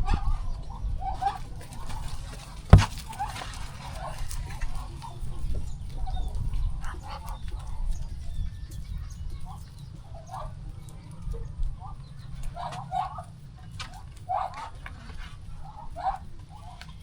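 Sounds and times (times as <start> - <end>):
sharp knock: 2.7 - 3.1.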